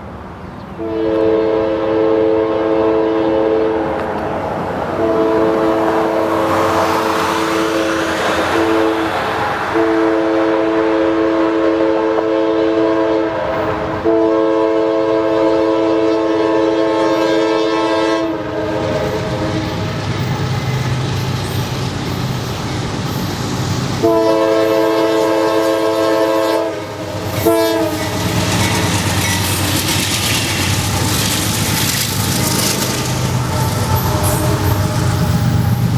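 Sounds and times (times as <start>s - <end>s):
freight train rumbling past: 0.0s - 35.9s
locomotive air horn blasts: 0.8s - 4.0s, 5.0s - 6.6s, 8.5s - 20.0s, 24.0s - 28.5s, 32.4s - 35.8s.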